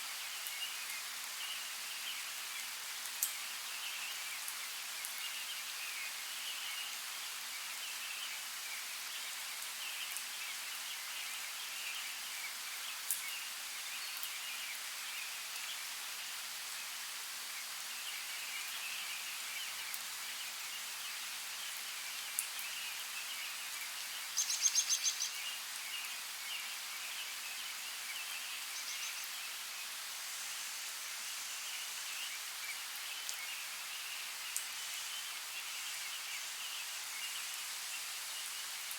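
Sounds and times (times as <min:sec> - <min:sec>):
birds chirping faintly: 0:17.6 - 0:30.1.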